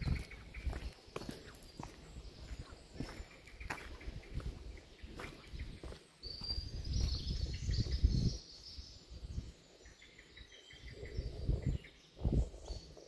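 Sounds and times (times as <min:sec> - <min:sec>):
small birds singing: 0:00.0 - 0:13.0
low rumbling microphone noise: 0:10.8 - 0:13.0.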